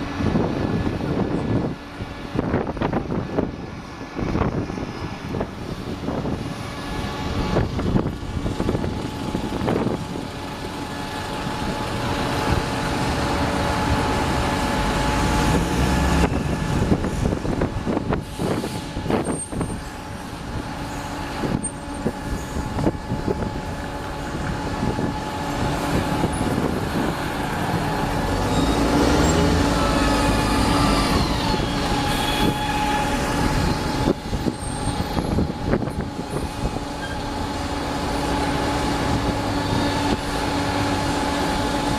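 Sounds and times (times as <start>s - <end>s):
diesel engine running: 0.0s - 41.9s
falling squeal: 28.4s - 35.2s, 37.0s - 37.3s.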